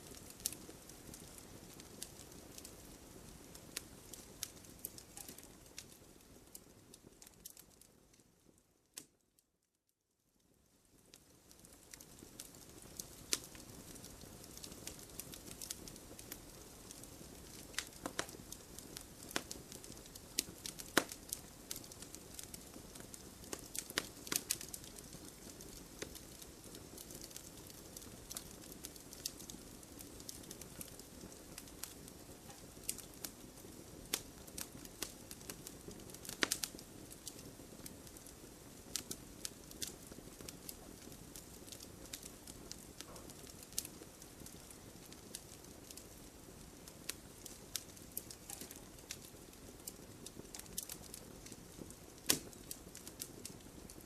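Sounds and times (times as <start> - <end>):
campfire crackling: 0.0 - 9.2, 10.7 - 54.0.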